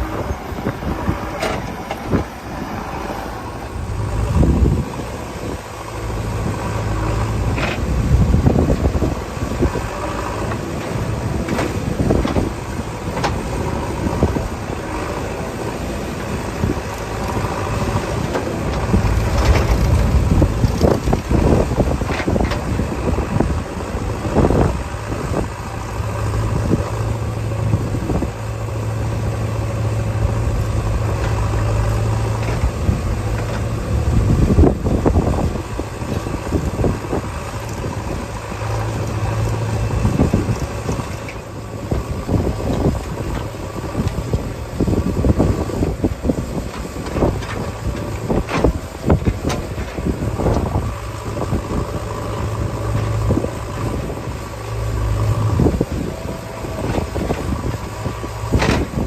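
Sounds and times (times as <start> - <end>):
diesel engine running under load: 0.0 - 59.0
knocks and clatter: 56.8 - 59.0.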